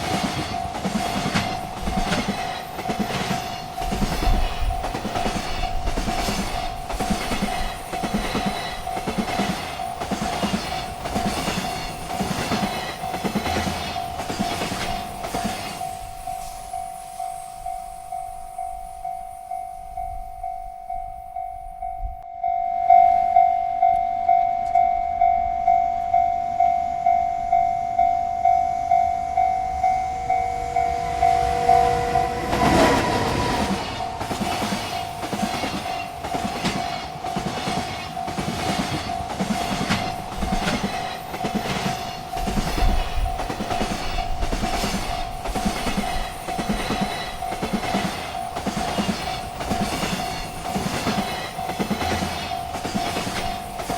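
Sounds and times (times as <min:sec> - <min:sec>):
train cars clattering over rails: 0:00.0 - 0:16.3, 0:29.6 - 0:53.9
railroad crossing bell ringing: 0:00.0 - 0:53.9.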